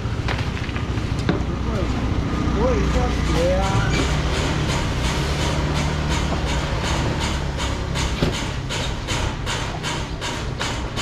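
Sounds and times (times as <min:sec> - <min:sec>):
train wheels clattering over joints: 0:02.6 - 0:11.0.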